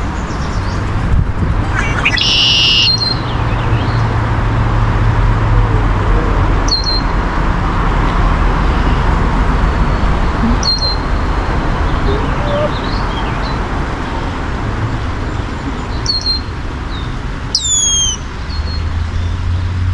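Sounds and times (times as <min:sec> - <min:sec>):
road traffic noise: 0:00.0 - 0:19.9
bird calling: 0:01.7 - 0:03.2, 0:06.7 - 0:07.1, 0:10.0 - 0:13.4, 0:16.0 - 0:16.5, 0:17.5 - 0:18.2.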